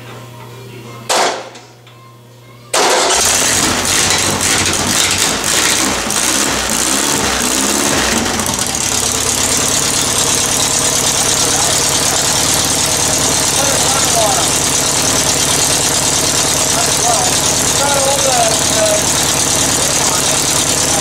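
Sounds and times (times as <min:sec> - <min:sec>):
air-cooled engine running: 0:02.8 - 0:21.0.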